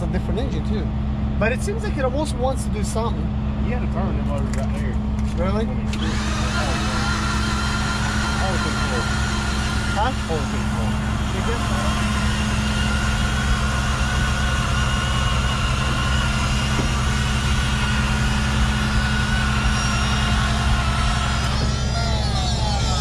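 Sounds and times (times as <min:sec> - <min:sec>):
vehicle engine idling: 0:00.0 - 0:23.0
high-pitched downward sweeping tones: 0:06.0 - 0:23.0.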